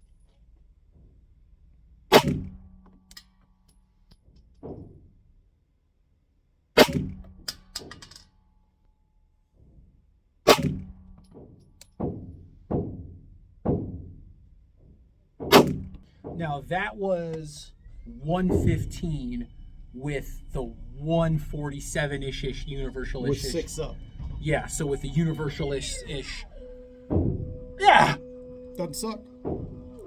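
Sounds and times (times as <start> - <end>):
pistol shots: 6.8 - 7.2, 10.5 - 10.9
fainter bangs: 15.4 - 30.0.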